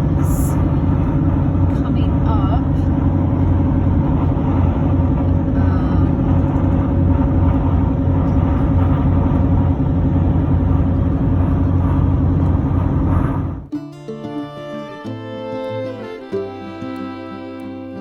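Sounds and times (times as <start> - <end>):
vehicle engine and tyre noise: 0.0 - 13.7.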